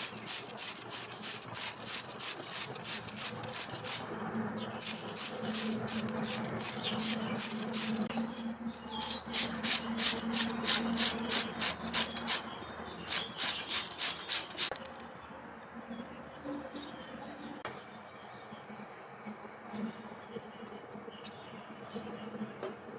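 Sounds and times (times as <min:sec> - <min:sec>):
radish rasping on a grater: 0:00.0 - 0:04.1, 0:04.8 - 0:08.1.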